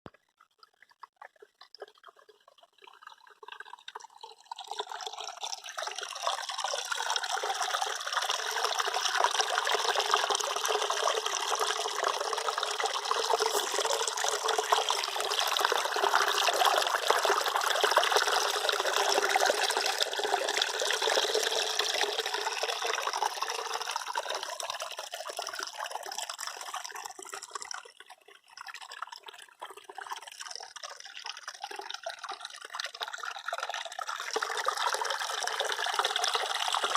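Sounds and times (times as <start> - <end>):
water dripping: 0.1 - 36.9
water rushing: 13.2 - 17.6.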